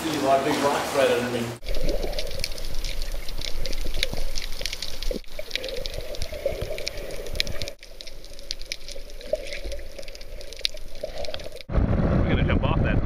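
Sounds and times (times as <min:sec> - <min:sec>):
water splashing and bubbling: 0:00.0 - 0:11.7
crackle of small clicks: 0:01.7 - 0:11.7.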